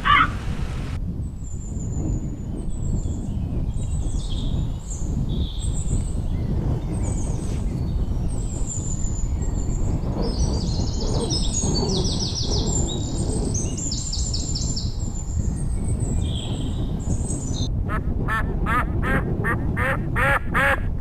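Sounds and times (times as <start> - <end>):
small birds chirping: 1.5 - 17.7.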